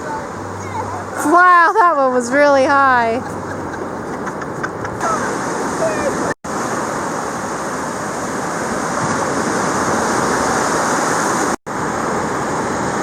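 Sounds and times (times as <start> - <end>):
ocean surf washing on shore: 0.0 - 13.0.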